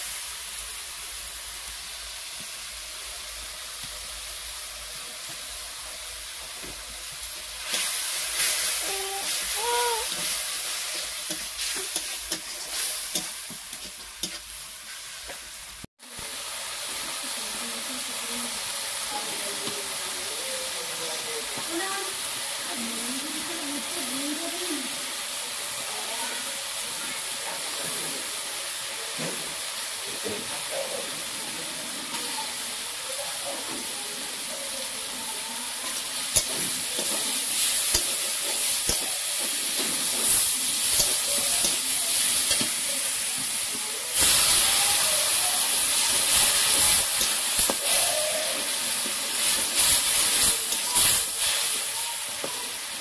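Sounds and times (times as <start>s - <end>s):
fish frying in hot oil: 0.0s - 53.0s.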